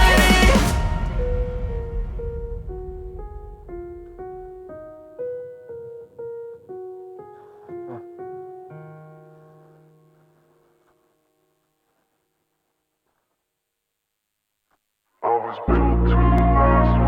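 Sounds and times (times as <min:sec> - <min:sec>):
keyboard melody: 0:00.0 - 0:03.0, 0:04.4 - 0:10.2, 0:15.7 - 0:17.0.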